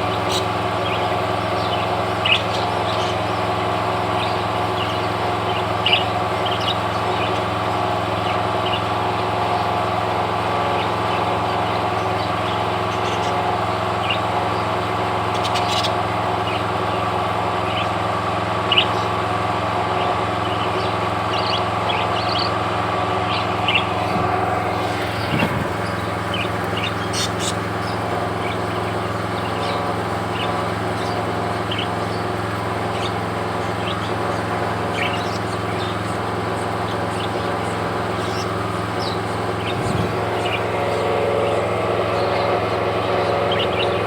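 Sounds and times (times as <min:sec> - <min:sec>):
parrots chirping: 0:00.0 - 0:08.9, 0:10.7 - 0:16.6, 0:23.7 - 0:44.0
steady mechanical hum: 0:00.0 - 0:44.0.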